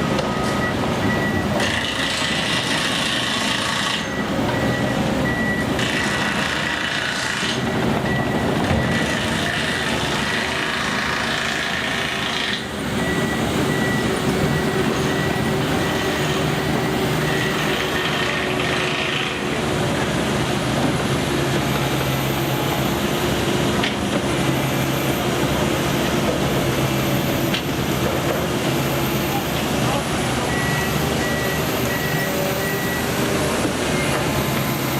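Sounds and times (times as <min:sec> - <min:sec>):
construction machinery engine hum: 0:00.0 - 0:34.9.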